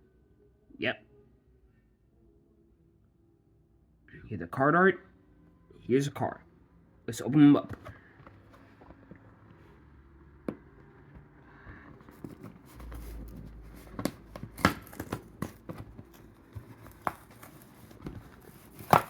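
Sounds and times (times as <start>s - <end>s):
sharp clicks and crinkles: 12.0s - 19.0s
plastic packaging crackling: 12.8s - 19.0s.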